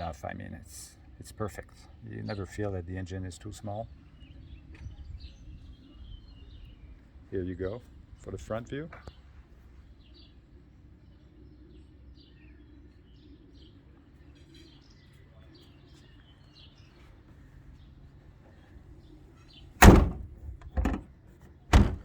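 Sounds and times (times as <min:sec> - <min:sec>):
truck bonnet slamming shut: 0:19.8 - 0:21.0, 0:21.7 - 0:22.0.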